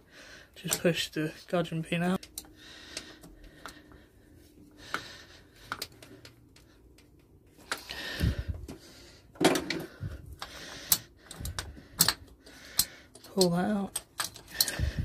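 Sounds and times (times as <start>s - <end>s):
metal engine parts clicking: 10.4s - 15.0s.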